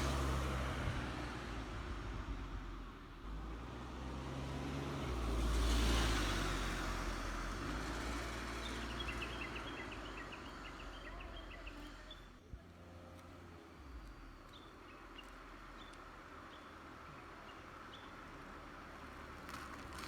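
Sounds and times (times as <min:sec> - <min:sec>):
vehicle passing: 0:03.2 - 0:20.0
birds chirping: 0:08.1 - 0:12.4, 0:13.0 - 0:18.7.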